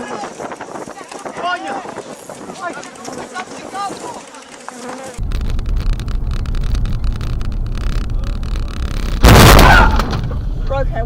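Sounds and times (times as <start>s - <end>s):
low rumble: 5.2s - 11.0s
window breaking crash: 9.2s - 10.4s.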